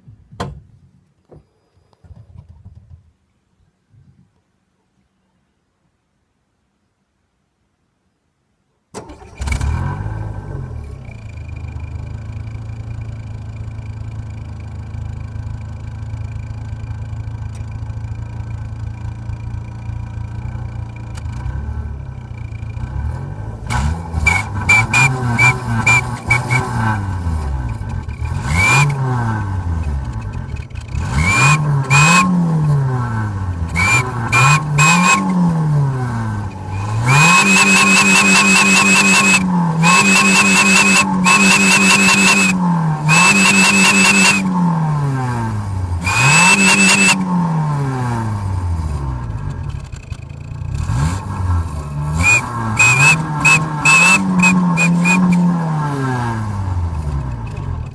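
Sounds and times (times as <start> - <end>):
car engine revving: 20.9 - 57.9
high exhaust whistle: 24.3 - 26.6, 36.8 - 44.5, 46.0 - 47.2, 52.2 - 55.4.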